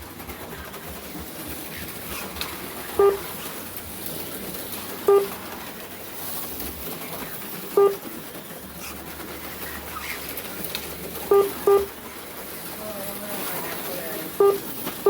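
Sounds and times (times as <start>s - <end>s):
slot cars hissing around track: 0.0s - 15.0s
short electronic beeps: 3.0s - 3.2s, 5.1s - 5.3s, 7.8s - 8.0s, 11.3s - 11.9s, 14.4s - 14.6s.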